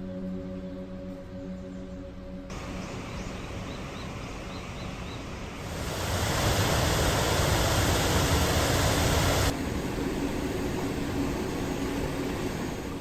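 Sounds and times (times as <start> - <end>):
loud rushing noise with rumble: 2.5 - 10.1
quiet hiss: 2.5 - 12.7.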